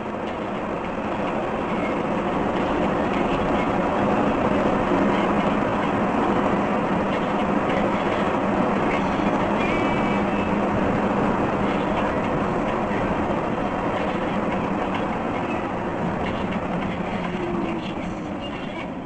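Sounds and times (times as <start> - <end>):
moving vehicle rumbling: 0.0 - 19.0.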